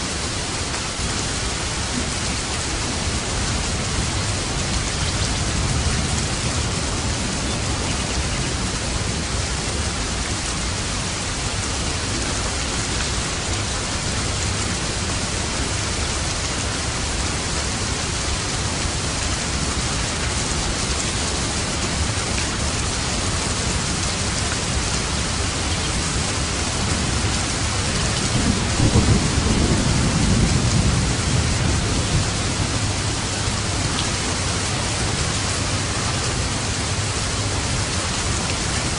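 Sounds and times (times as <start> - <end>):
steady rain: 0.0 - 38.9
low thunder roll: 28.3 - 33.2.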